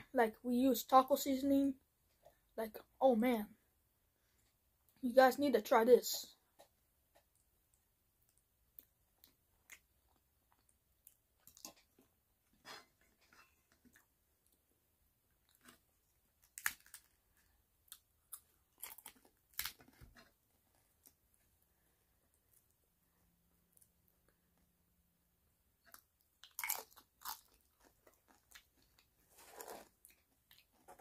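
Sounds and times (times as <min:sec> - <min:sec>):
person chewing crunchy food: 0:08.8 - 0:12.1, 0:15.4 - 0:20.0, 0:25.8 - 0:31.0.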